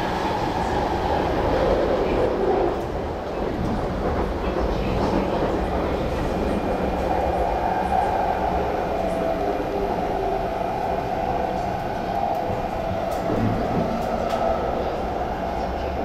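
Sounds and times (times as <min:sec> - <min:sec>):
train wheels rumbling: 0:00.0 - 0:16.0.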